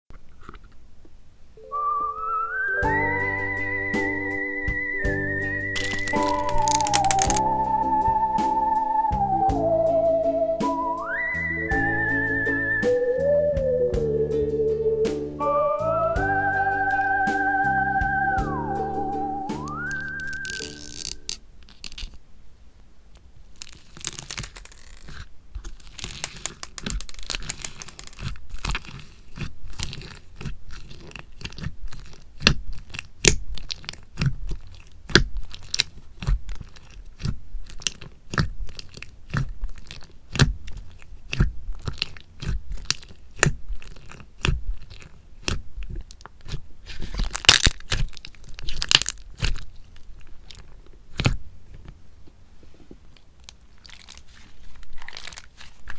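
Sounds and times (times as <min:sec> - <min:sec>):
slime popping and clicking: 0:05.8 - 0:07.4.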